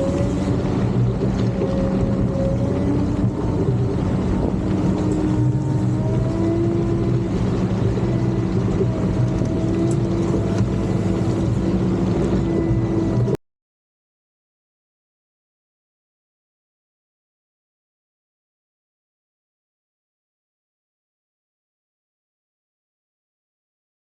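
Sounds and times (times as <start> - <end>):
bulldozer diesel engine running: 0.0 - 13.4.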